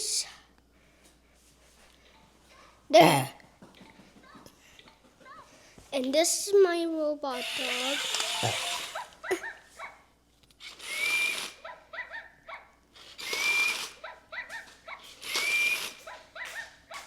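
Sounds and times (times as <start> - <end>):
toy robot dog barking: 7.4 - 10.0, 13.8 - 15.4, 16.0 - 17.0.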